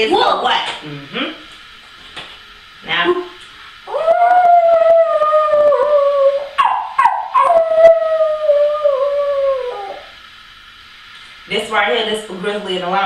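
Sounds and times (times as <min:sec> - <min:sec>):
animal howling: 0:03.9 - 0:10.2
short rough yelps: 0:06.6 - 0:07.5.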